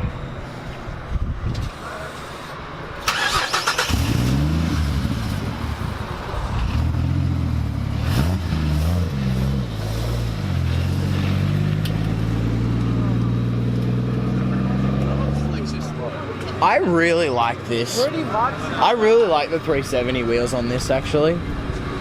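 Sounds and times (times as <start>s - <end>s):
car starter cranking: 3.0s - 4.3s.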